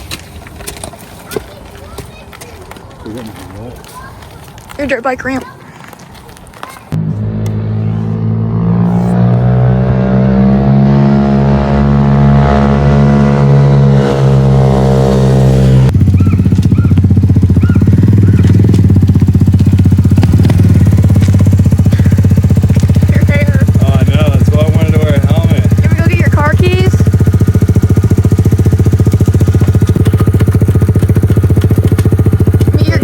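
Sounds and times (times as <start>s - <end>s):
dirt bike engine idling: 11.7s - 33.0s.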